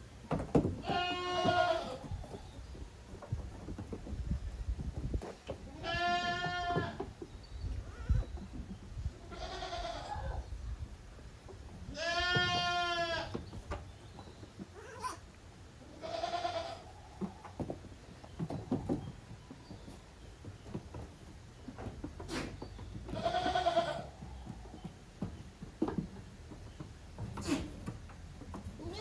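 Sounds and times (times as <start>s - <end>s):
goats bleating: 0.8s - 2.1s, 5.7s - 7.0s, 9.2s - 10.4s, 11.9s - 13.3s, 15.9s - 16.9s, 23.1s - 24.2s, 28.8s - 29.0s.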